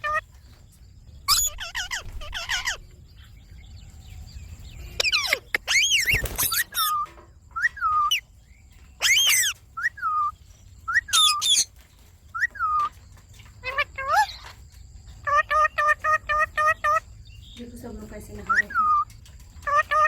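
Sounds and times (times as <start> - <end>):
parrots squawking: 0.0 - 0.3, 1.2 - 2.9, 5.0 - 8.2, 9.0 - 10.3, 10.9 - 11.7, 12.4 - 12.9, 13.6 - 14.6, 15.2 - 17.1, 18.4 - 20.0.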